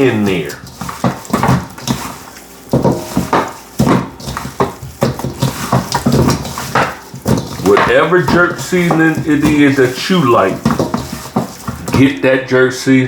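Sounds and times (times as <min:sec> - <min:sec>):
hands rubbing seasoning into chicken: 0:00.0 - 0:12.2.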